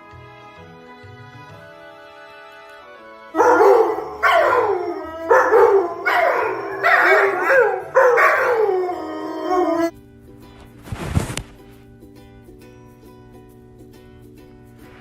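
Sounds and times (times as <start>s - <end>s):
faint background music: 0.0s - 15.0s
dog howling: 3.4s - 9.9s.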